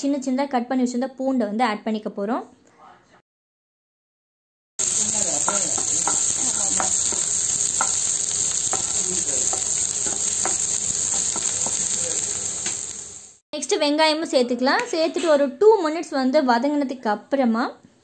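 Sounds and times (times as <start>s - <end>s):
garlic sizzling in a frying pan: 4.8s - 13.4s.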